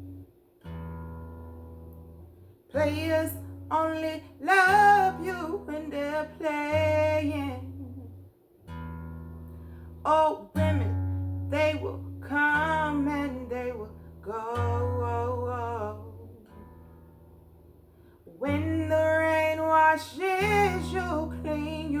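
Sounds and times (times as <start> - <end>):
acoustic guitar picked notes: 0.0 - 22.0
person singing: 2.7 - 8.2, 10.1 - 16.5, 18.3 - 22.0.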